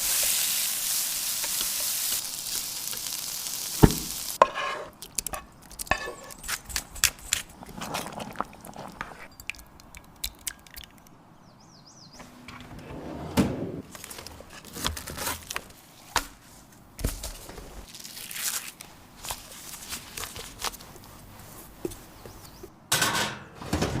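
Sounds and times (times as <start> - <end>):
dull thud: 3.8 - 4.1.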